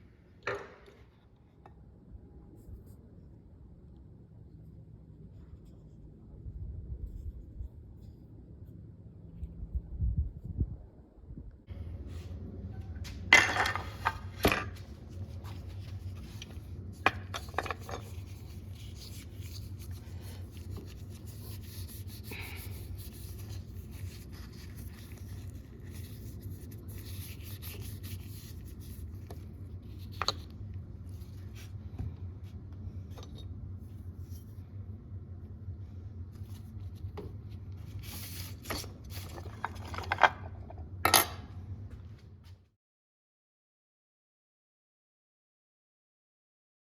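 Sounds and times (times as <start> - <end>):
steady low hum: 0.0 - 42.7
rubbing and scraping on leather: 14.1 - 31.8.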